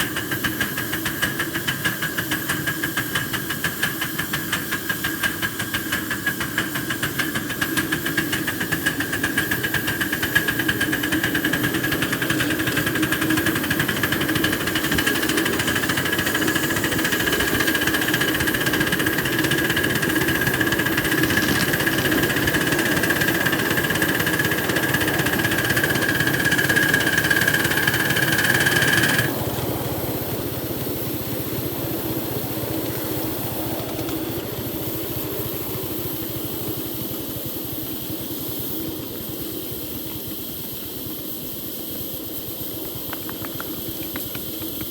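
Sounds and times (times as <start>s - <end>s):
steam hiss and whine: 0.0s - 44.9s
steam locomotive exhaust beating: 0.0s - 44.9s
quiet steady running sound: 9.7s - 37.7s.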